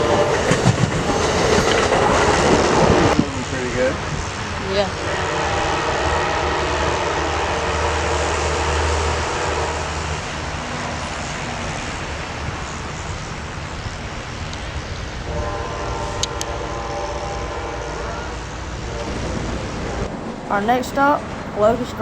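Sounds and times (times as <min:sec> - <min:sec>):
train running noise: 0:00.0 - 0:22.0
locomotive air horn: 0:05.0 - 0:10.4, 0:15.2 - 0:20.0.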